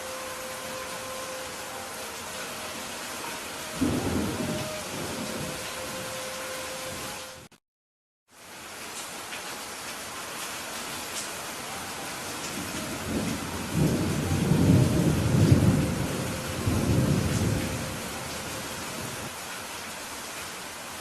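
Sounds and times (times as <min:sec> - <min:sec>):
steady rain: 0:00.0 - 0:07.6, 0:08.3 - 0:21.0
thunder rolling: 0:03.8 - 0:06.0, 0:12.5 - 0:18.2.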